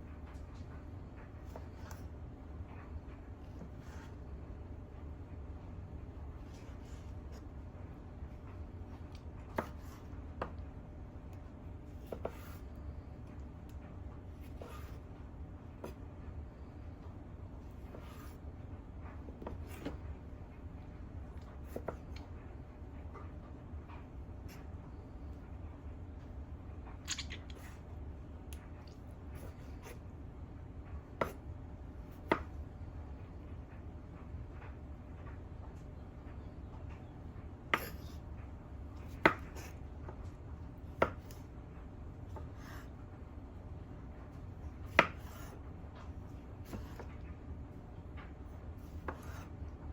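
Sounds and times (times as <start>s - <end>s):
steady low hum: 0.0s - 49.9s
knife chopping on cutting board: 9.5s - 10.6s, 12.0s - 12.6s, 14.4s - 15.0s, 32.2s - 32.5s, 37.7s - 38.2s, 39.0s - 39.8s, 41.0s - 41.4s, 44.9s - 45.6s, 46.6s - 47.1s, 48.8s - 49.5s
knife cutting on cutting board: 12.0s - 12.7s, 37.8s - 38.2s, 44.9s - 45.6s, 48.8s - 49.5s.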